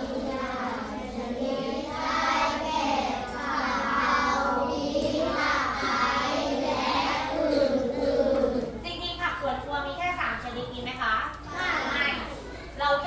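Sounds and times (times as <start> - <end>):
children speaking in unison: 0.0 - 8.8, 11.3 - 12.8.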